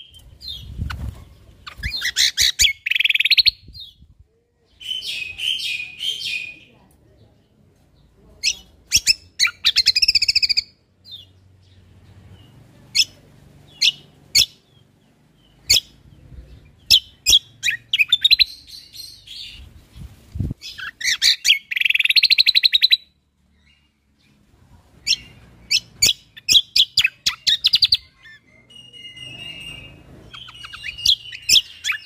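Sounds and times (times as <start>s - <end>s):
songbird whistling and trilling: 1.6s - 4.0s, 8.4s - 11.3s, 15.6s - 16.0s, 16.8s - 19.7s, 20.6s - 23.1s, 25.0s - 32.0s.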